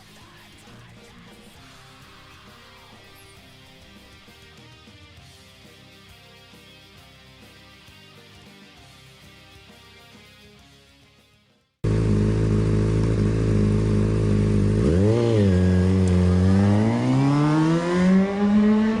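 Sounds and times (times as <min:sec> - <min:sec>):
background music: 0:00.0 - 0:11.5
motorcycle engine idling and revving: 0:11.8 - 0:19.0.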